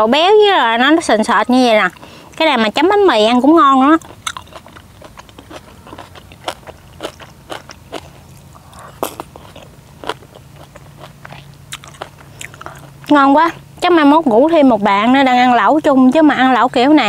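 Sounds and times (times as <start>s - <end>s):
person chewing and biting: 4.0s - 13.1s.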